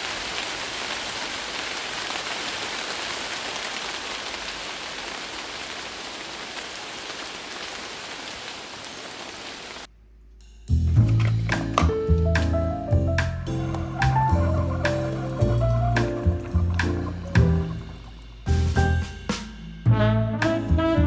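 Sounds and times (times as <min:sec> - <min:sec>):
steady rain falling: 0:00.0 - 0:09.9, 0:11.5 - 0:19.8
drops ticking: 0:11.0 - 0:19.4.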